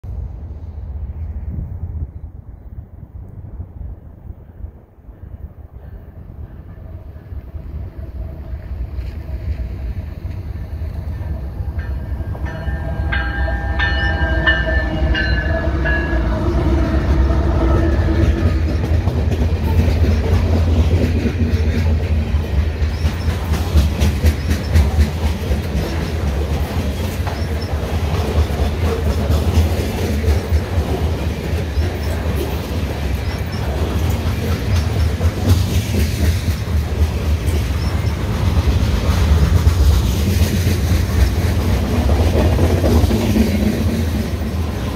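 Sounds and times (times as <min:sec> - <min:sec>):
train rumble: 0:00.0 - 0:44.9
train horn: 0:12.0 - 0:18.9
wheels clattering over rail joints: 0:17.7 - 0:44.9.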